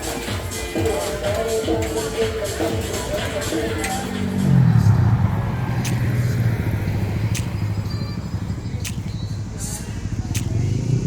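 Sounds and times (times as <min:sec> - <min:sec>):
vehicle engine humming: 0:00.0 - 0:11.0
short sharp ticks: 0:07.3 - 0:07.6, 0:10.3 - 0:10.6.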